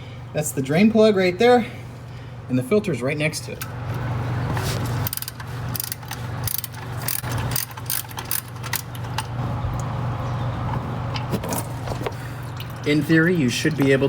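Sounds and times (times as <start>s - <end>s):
ratchet wrench clicking: 5.0s - 9.2s.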